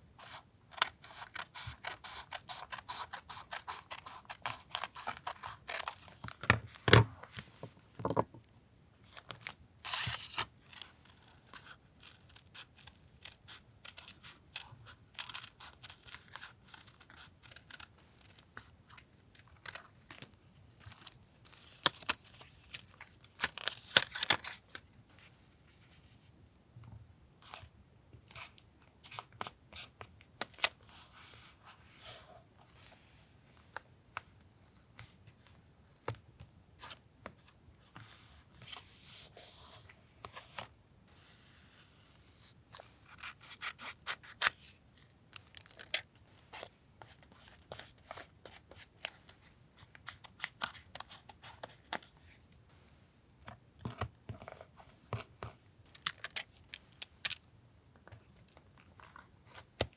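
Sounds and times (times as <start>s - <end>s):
scissors snipping paper: 0.3s - 6.2s, 11.1s - 18.7s.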